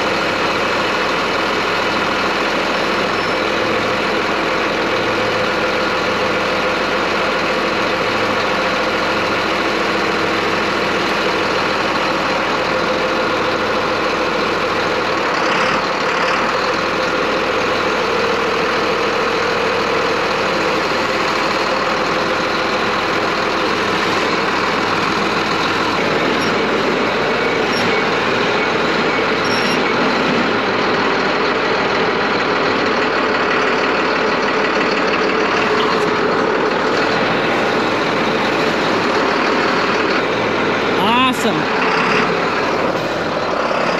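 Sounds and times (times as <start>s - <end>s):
farm machine engine droning: 0.0s - 43.9s.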